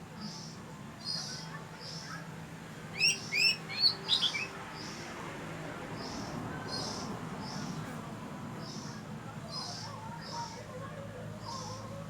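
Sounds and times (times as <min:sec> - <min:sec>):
bird singing whistled notes: 0:03.0 - 0:04.6.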